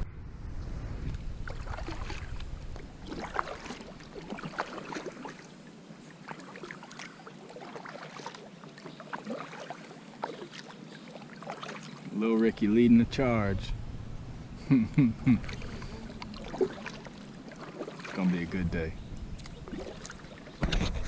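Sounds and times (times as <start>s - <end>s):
wind rumble on microphone: 0.0s - 3.8s, 12.5s - 16.3s, 18.6s - 19.8s, 20.6s - 21.0s
paddle splashing in water: 1.1s - 12.9s, 15.3s - 21.0s.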